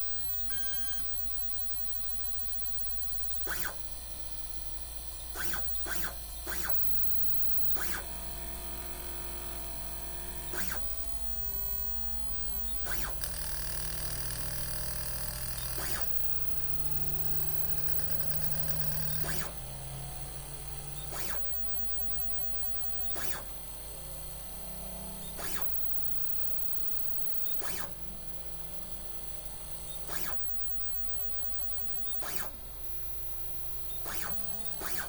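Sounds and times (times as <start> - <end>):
stepper motors humming: 3.0 - 35.0
sharp click: 3.4 - 3.9, 5.4 - 6.9, 10.4 - 11.0, 21.0 - 21.7, 22.9 - 23.6, 25.2 - 25.9, 27.4 - 28.0, 29.9 - 32.7, 33.9 - 35.0.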